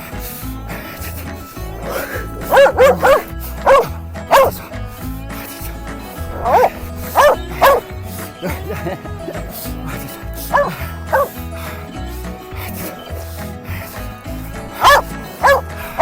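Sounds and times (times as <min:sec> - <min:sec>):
background music with steady beat: 0:00.0 - 0:16.0
dog barking: 0:01.8 - 0:04.8, 0:06.2 - 0:07.9, 0:10.4 - 0:11.4, 0:14.7 - 0:16.0.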